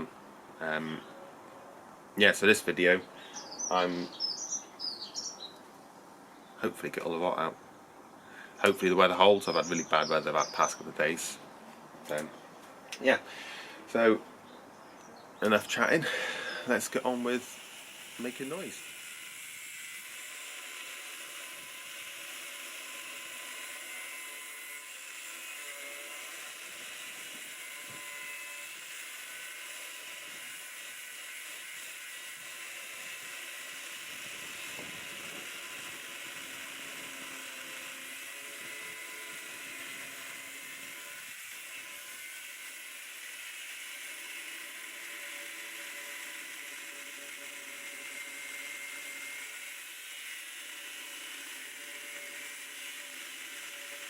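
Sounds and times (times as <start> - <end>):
angle grinder cutting steel: 8.6 - 11.4, 15.5 - 54.0.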